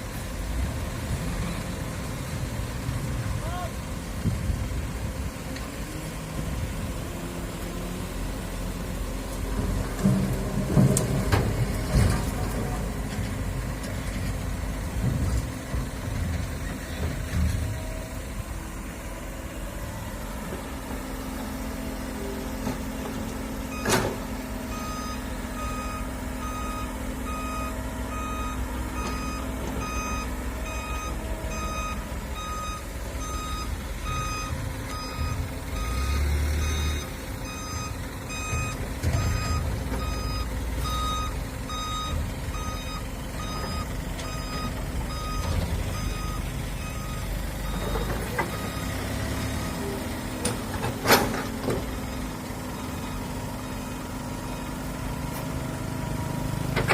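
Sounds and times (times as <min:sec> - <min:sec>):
diesel machinery rumbling: 0:00.0 - 0:56.9
back-up alarm beeping: 0:24.7 - 0:48.9.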